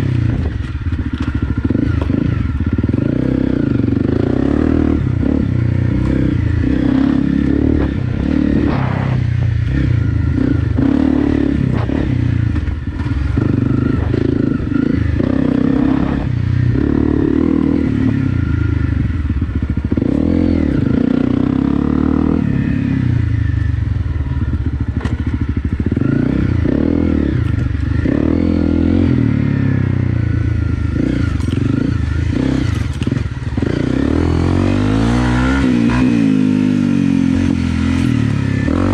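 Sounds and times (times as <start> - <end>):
motorcycle engine revving: 0.0 - 38.9
knocks and clatter from bike: 0.2 - 3.1, 24.8 - 26.1, 27.3 - 28.2, 31.0 - 33.8, 37.8 - 38.6.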